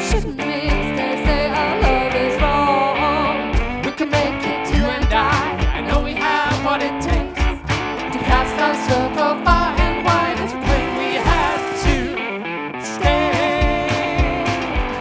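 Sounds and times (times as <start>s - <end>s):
bass drum beat: 0.0s - 2.7s, 3.6s - 12.2s, 13.0s - 15.0s
live band music: 3.6s - 12.2s, 12.9s - 15.0s.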